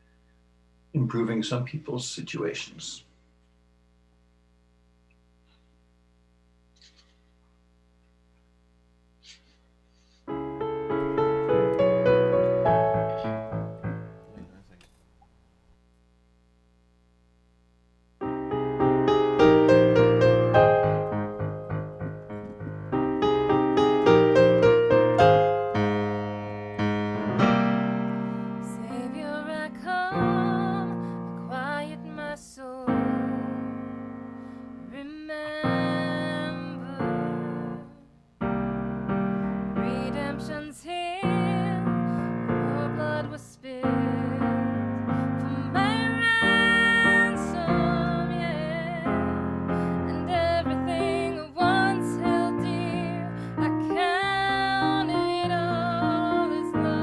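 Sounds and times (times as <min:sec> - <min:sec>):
slow piano piece: 0:10.2 - 0:14.8, 0:18.2 - 0:57.0
high melody with vibrato: 0:18.2 - 0:29.1.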